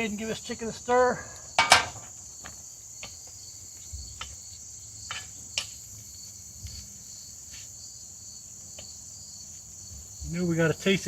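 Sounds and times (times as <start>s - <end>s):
crickets chirping: 0.0s - 11.0s
utensil scraping cast-iron pot: 1.5s - 2.1s.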